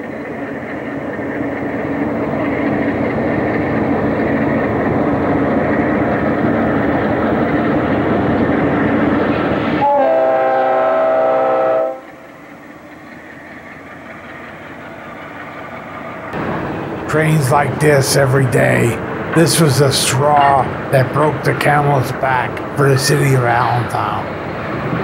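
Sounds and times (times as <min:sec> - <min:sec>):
freight train passing: 0:00.0 - 0:25.0
locomotive air horn: 0:09.8 - 0:12.1.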